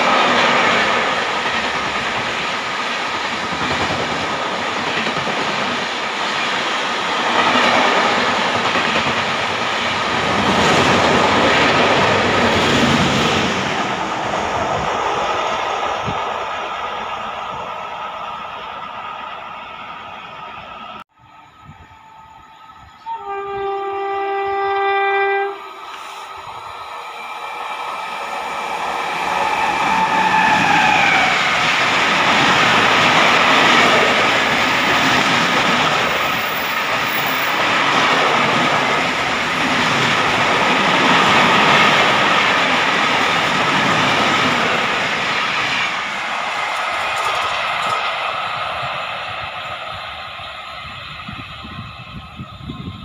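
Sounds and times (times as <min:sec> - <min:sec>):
train rushing past on rails: 0:00.0 - 0:53.0
train horn blasts: 0:21.7 - 0:26.2.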